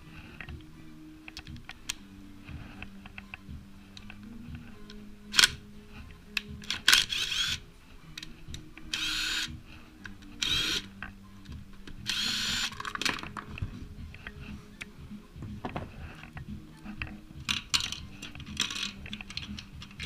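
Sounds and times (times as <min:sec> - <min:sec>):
power driver spinning: 0:06.6 - 0:07.6, 0:08.9 - 0:09.6, 0:10.4 - 0:10.9, 0:12.0 - 0:13.6.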